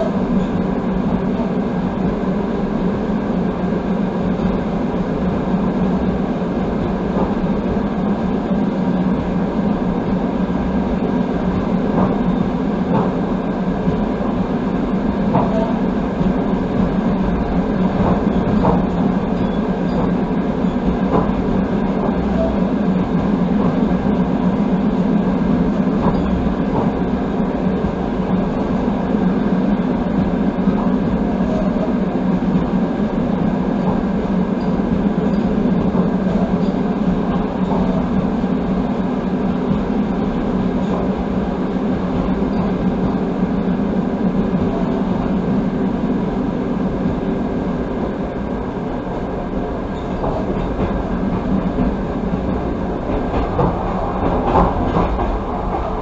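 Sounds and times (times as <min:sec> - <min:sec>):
train wheels rolling on track: 0:00.0 - 0:56.0.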